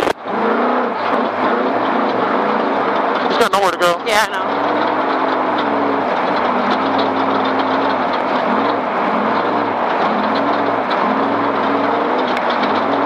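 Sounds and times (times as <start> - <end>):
engine running at low speed: 0.0 - 13.0
vehicle rattle and rumble: 0.0 - 13.0.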